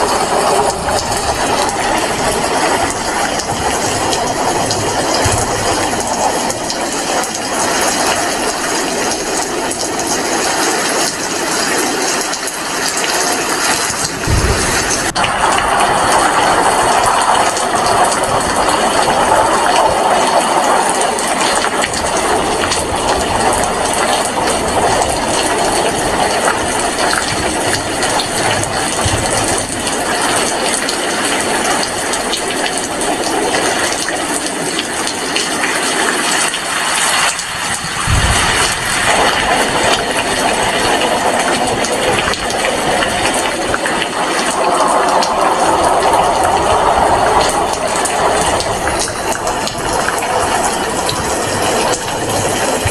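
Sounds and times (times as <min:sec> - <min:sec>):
heavy rain falling: 0:00.0 - 0:52.9
low thumps: 0:14.0 - 0:16.6.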